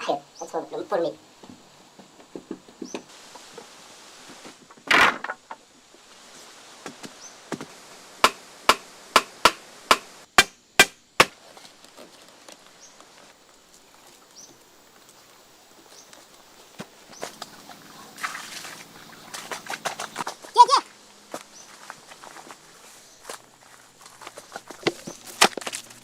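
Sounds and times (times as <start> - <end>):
tool chopping into wood: 7.5 - 11.4.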